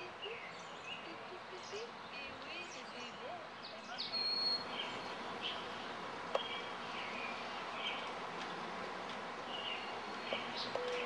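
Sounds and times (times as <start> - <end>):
small birds chirping: 0.0 - 11.0
steady outdoor hiss: 0.0 - 11.0.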